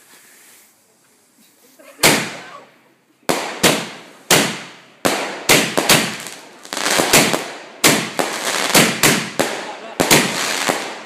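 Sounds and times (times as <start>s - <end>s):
crackling firework bangs: 2.0s - 2.5s, 3.3s - 11.0s
firework shells bursting: 3.3s - 11.0s.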